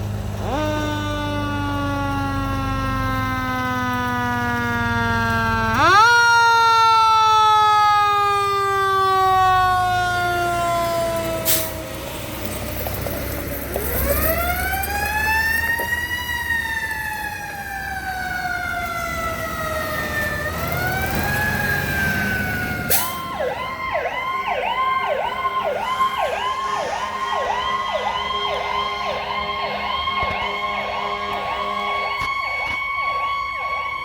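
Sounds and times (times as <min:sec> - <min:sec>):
wailing siren: 0:00.0 - 0:34.0
yelping siren: 0:00.4 - 0:34.0.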